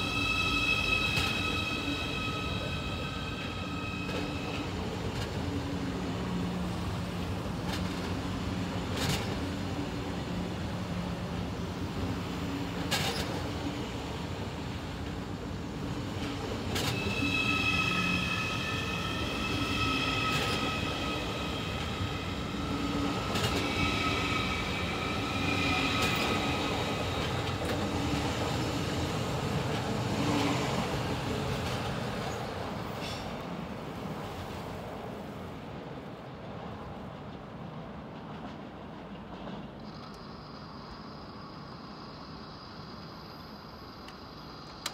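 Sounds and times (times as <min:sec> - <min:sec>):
train wheels squealing: 0:00.0 - 0:07.0, 0:11.9 - 0:14.2, 0:15.0 - 0:33.4, 0:39.3 - 0:44.9.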